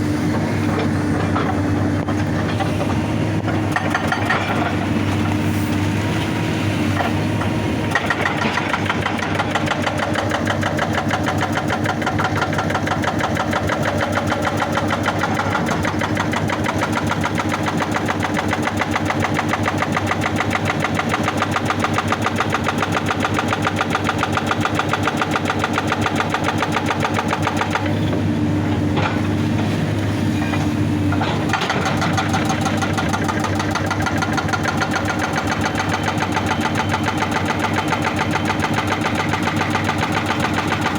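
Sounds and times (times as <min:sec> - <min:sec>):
diesel engine drone: 0:00.0 - 0:18.4, 0:26.6 - 0:40.9
hydraulic rock breaker hammering: 0:00.3 - 0:05.4, 0:06.9 - 0:40.9.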